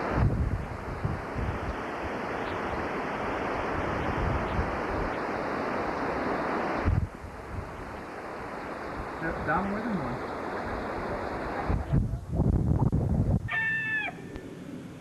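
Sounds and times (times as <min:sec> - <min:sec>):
driving rain: 0:00.0 - 0:11.8
wind buffeting microphone: 0:00.0 - 0:14.4
hurricane wind: 0:00.0 - 0:15.0.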